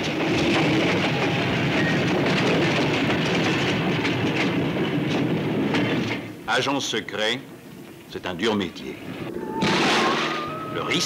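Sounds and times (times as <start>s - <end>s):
wheels clattering over rail joints: 0.0s - 7.2s
train rumbling and rattling: 0.0s - 11.0s.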